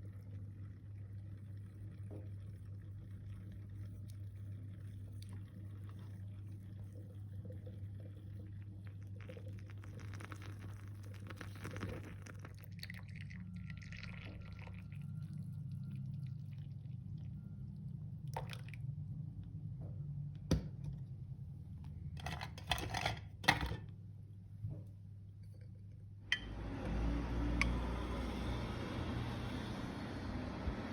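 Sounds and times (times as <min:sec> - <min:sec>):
liquid pouring into a cup: 0:00.0 - 0:19.0
low hum: 0:24.1 - 0:30.9.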